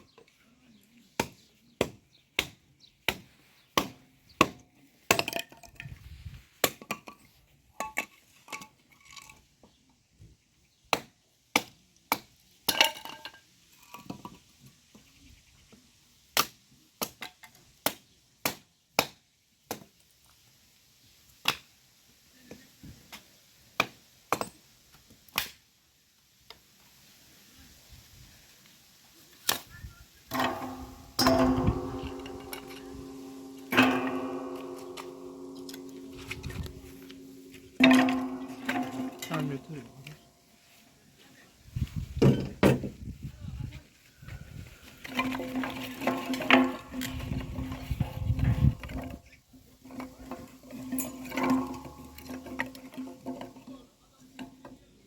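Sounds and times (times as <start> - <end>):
sharp clicks and knocks: 30.3 - 40.2, 49.9 - 53.7
short metallic ring: 30.3 - 40.2.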